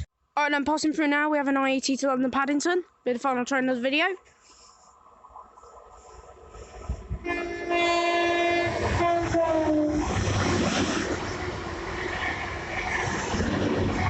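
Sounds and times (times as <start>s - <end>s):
train rushing and rumbling: 5.3s - 14.0s
train horn: 7.2s - 10.3s, 11.7s - 14.0s.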